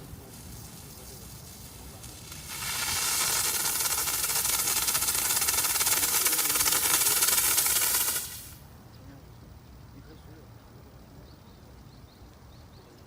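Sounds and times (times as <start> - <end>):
steam gun hissing: 0.0 - 8.6.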